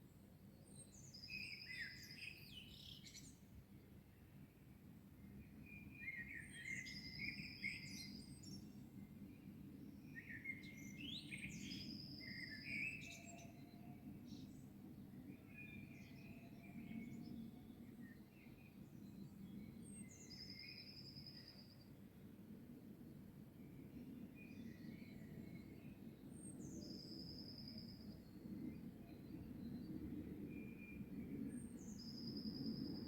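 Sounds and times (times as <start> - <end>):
songbirds singing: 5.4 - 21.8.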